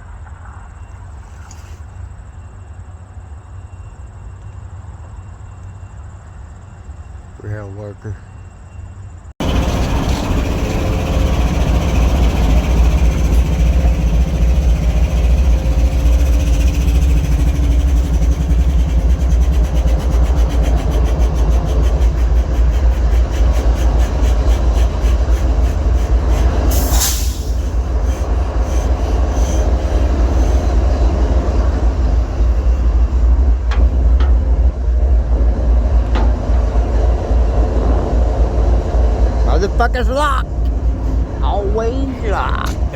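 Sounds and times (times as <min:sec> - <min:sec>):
freight train rumble: 0:00.0 - 0:42.9
wheels clacking on rail joints: 0:09.4 - 0:42.9
loud hiss: 0:22.0 - 0:29.9.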